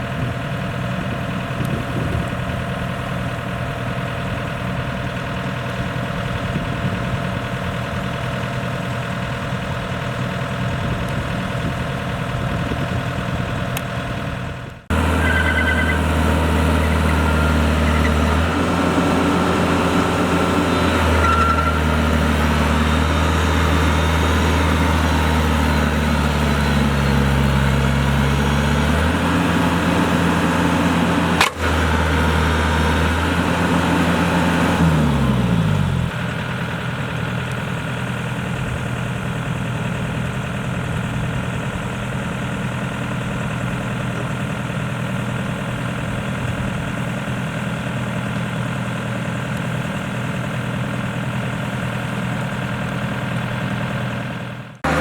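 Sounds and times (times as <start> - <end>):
diesel farm machinery engine: 0.0 - 55.0.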